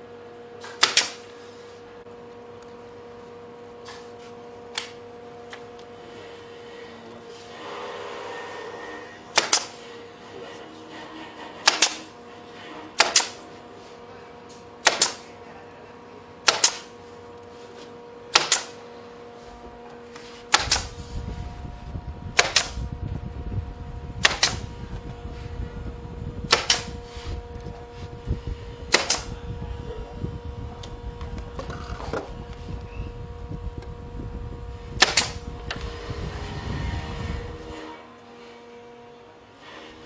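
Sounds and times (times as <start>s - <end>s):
steady hum: 0.0s - 40.0s
low rumble: 21.0s - 37.7s.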